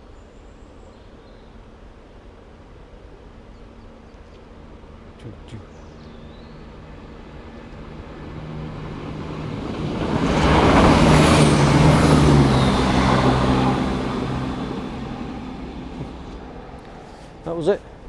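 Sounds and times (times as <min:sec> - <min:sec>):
diesel train engine hum: 0:04.5 - 0:18.0
train wheels rushing: 0:08.1 - 0:17.7.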